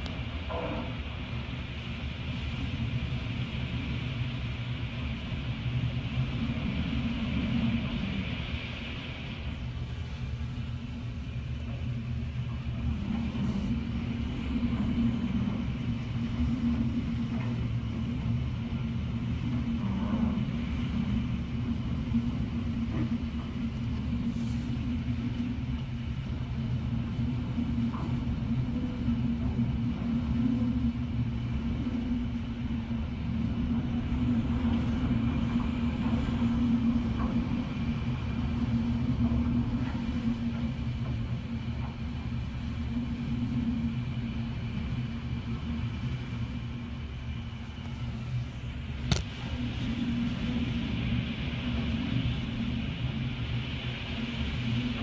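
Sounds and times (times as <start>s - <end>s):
strong wind rumbling: 0.0s - 55.0s.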